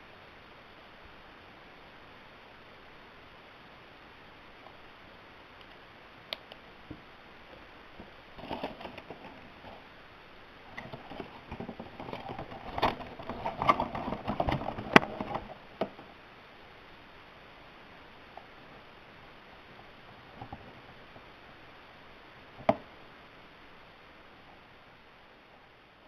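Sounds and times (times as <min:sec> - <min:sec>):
packaging rustling: 0:08.3 - 0:09.8.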